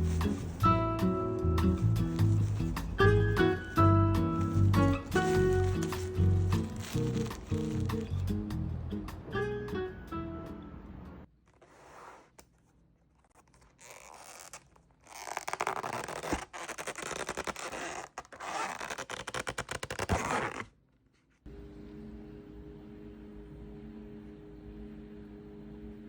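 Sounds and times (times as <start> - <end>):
scratchy scraping and rustling: 0.0 - 0.8, 1.6 - 8.2
steady low hum: 21.5 - 26.0.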